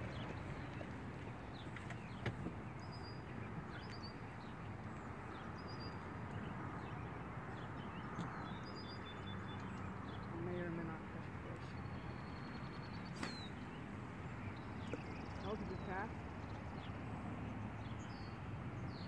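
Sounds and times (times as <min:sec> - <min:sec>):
outdoor background noise: 0:00.0 - 0:19.0
small bird chirping: 0:11.5 - 0:17.0.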